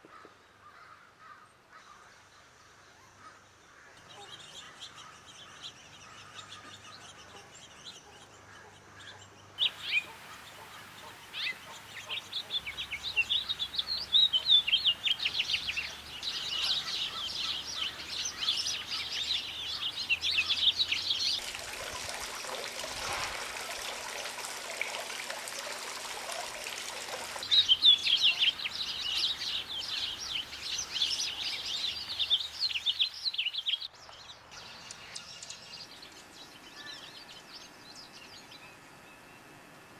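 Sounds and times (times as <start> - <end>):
small birds chirping: 9.6 - 21.4, 27.4 - 36.2
steady rushing hiss: 9.6 - 21.4, 27.4 - 33.5.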